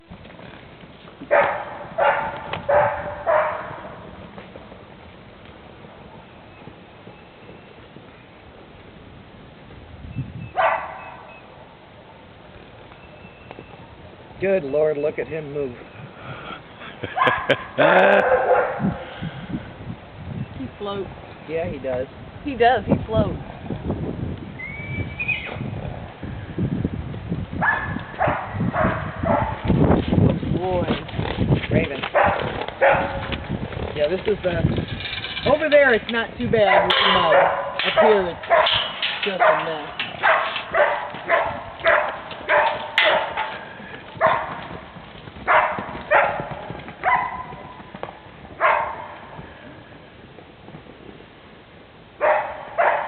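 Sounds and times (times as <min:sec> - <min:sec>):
hooves thudding on ground: 0:00.0 - 0:11.4, 0:12.0 - 0:21.4, 0:22.6 - 0:53.0
dog barking: 0:01.3 - 0:03.9, 0:10.6 - 0:11.3, 0:17.2 - 0:19.0, 0:27.6 - 0:29.6, 0:32.2 - 0:33.2, 0:36.7 - 0:38.8, 0:39.4 - 0:43.6, 0:44.2 - 0:44.6, 0:45.5 - 0:47.6, 0:48.6 - 0:49.2, 0:52.2 - 0:53.0.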